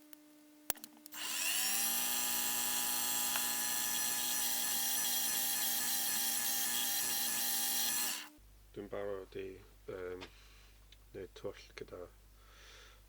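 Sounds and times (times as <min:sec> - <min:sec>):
electric drill motor whining: 0:01.1 - 0:08.4.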